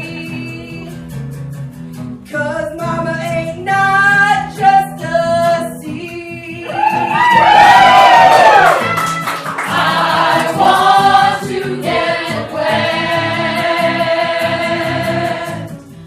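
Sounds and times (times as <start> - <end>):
instrumental accompaniment: 8.7 - 16.0
several voices singing together: 9.6 - 15.8.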